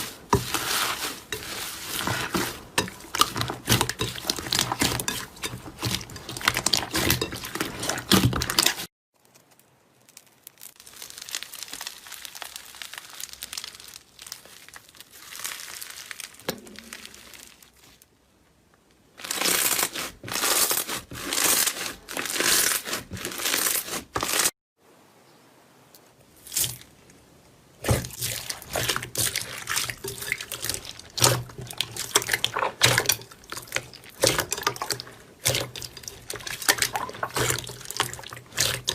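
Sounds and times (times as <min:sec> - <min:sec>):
slime squishing and popping: 0:03.1 - 0:18.0.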